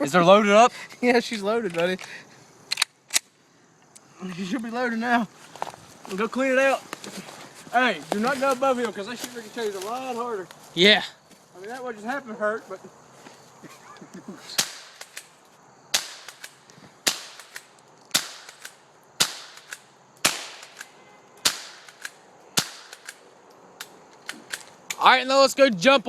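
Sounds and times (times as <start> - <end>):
faint cracks: 1.6 - 4.7, 5.4 - 10.7, 13.2 - 25.1
gunshots: 15.9 - 23.1.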